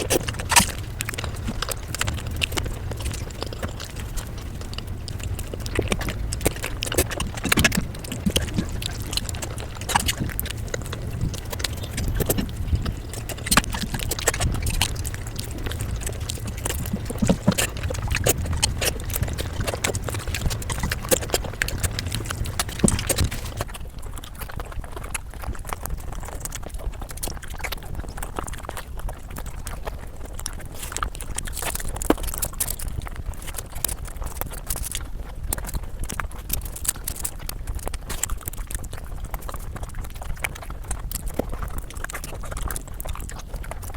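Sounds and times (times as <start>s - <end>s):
low hum: 0.0s - 23.7s
person chewing and smacking: 0.0s - 43.9s
wet mouth clicks and crunches: 0.0s - 43.9s.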